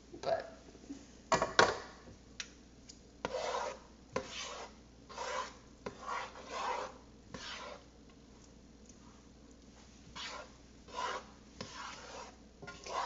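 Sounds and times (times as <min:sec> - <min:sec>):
spoon scraping rice in a pot: 0:03.2 - 0:07.9, 0:10.1 - 0:13.0.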